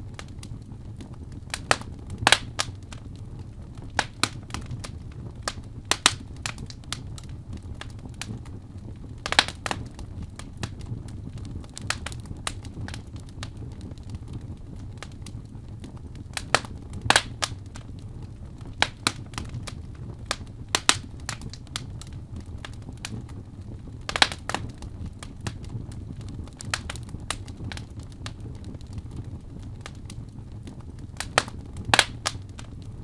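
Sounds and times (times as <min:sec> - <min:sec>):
low rumble of flames: 0:00.0 - 0:33.0
wood fire crackling and popping: 0:00.0 - 0:33.0.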